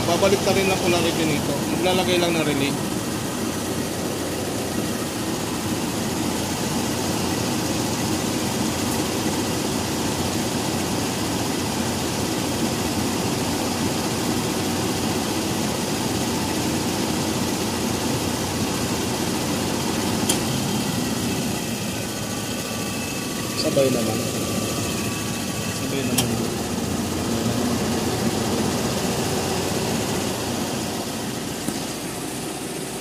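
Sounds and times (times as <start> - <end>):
car engine idling: 0.0 - 33.0
radiator cooling fans running: 0.0 - 33.0
sharp click: 26.1 - 26.4.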